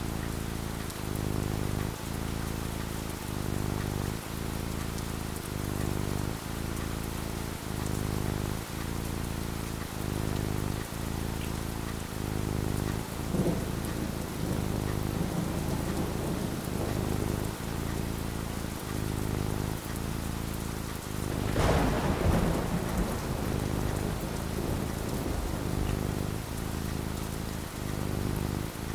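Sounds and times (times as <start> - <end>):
rain falling: 0.0 - 28.9
low continuous rumble: 12.7 - 28.9
thunder rolling: 13.3 - 17.8, 21.3 - 28.7.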